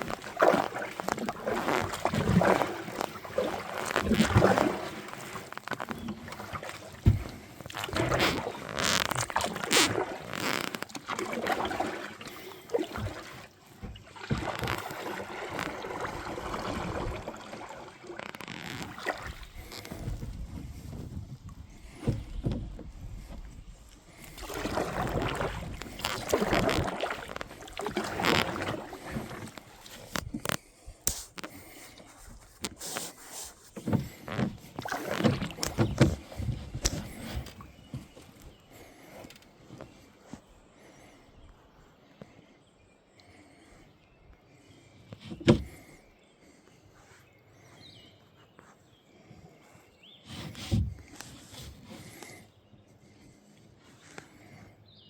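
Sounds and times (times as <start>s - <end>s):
paddle splashing in water: 0.0s - 40.9s, 50.2s - 52.4s.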